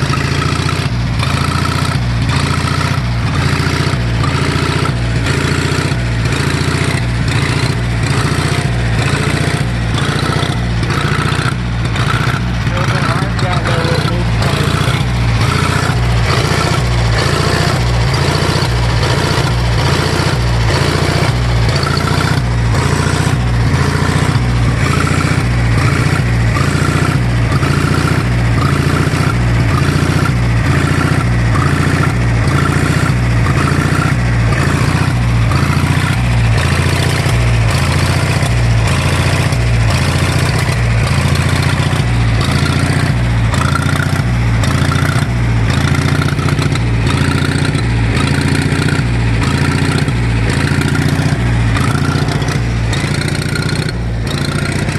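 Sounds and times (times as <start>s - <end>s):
tractor engine idling: 0.0s - 54.9s.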